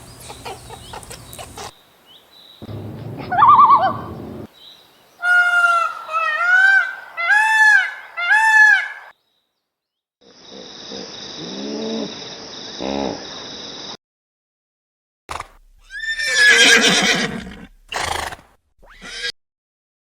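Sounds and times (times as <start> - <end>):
lower goose calls: 2.6 - 4.5, 5.2 - 9.1
goose honking: 2.7 - 4.5.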